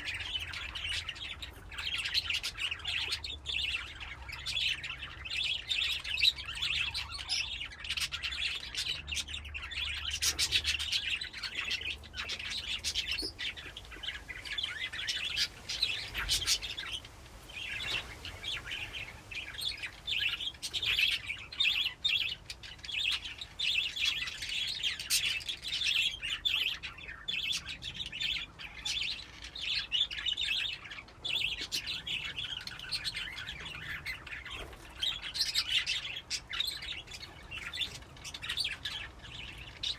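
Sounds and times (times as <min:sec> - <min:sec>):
budgies chirping and chattering: 0:00.0 - 0:39.9.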